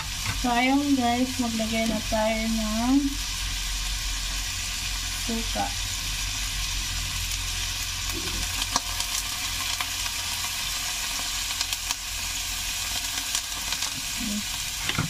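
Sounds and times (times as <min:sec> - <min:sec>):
chicken sizzling in a wok: 0:00.0 - 0:15.0
crackles and pops: 0:07.2 - 0:12.2, 0:12.8 - 0:15.0.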